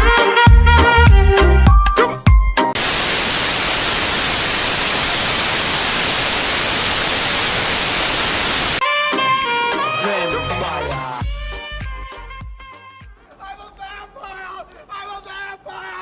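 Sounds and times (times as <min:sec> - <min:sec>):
white-noise static hiss: 0:02.8 - 0:08.8.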